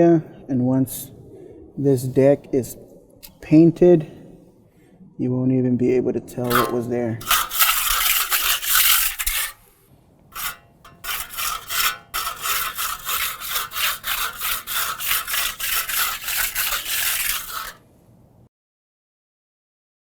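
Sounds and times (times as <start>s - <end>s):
hand tool scraping texture mix: 6.4s - 9.7s, 10.4s - 17.8s.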